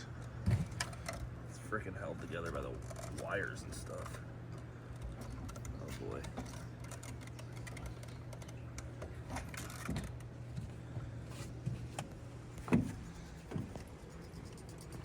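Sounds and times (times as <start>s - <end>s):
steady low hum: 0.0s - 15.0s
light clicks and knocks of handling: 2.3s - 14.0s.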